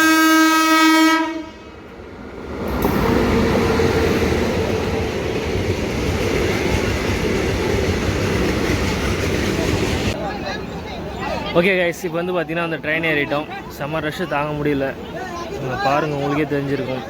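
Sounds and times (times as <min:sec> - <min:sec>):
train horn held note: 0:00.0 - 0:01.7
train rumble: 0:01.2 - 0:11.5.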